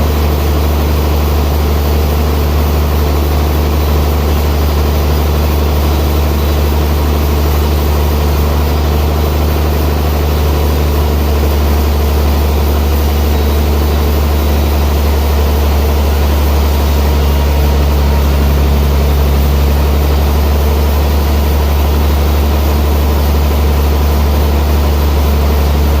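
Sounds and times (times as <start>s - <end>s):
sawmill machinery humming: 0.0s - 26.0s.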